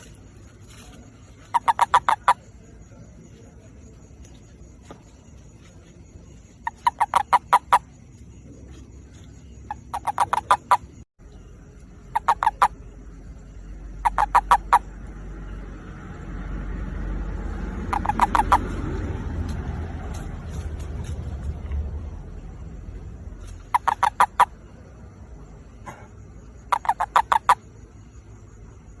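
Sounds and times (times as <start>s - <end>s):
toad pulsed trills: 0.0s - 3.3s, 6.3s - 19.2s, 22.2s - 29.0s.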